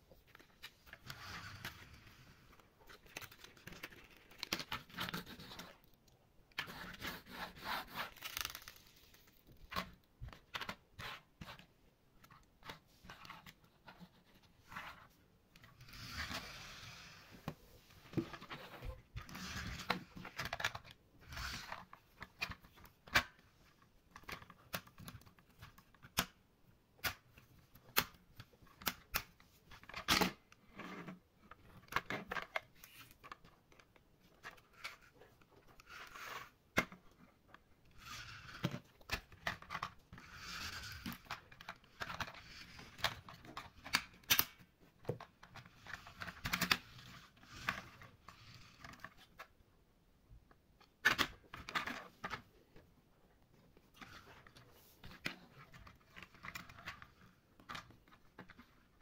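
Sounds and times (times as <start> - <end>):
toy wheels scraping and rolling: 15.8 - 17.3, 18.3 - 21.9, 37.9 - 38.7, 39.5 - 43.2
plastic parts clicking and knocking: 17.4 - 26.4, 27.0 - 49.6, 50.4 - 52.9.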